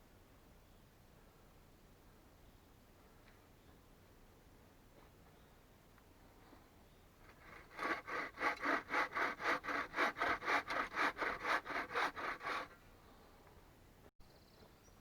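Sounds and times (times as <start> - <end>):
hand saw cutting wood: 7.3 - 12.8.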